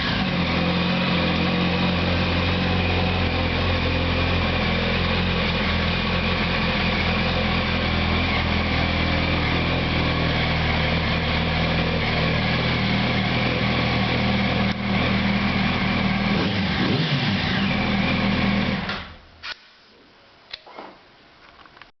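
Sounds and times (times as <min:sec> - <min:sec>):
motorcycle engine idling: 0:00.0 - 0:16.4.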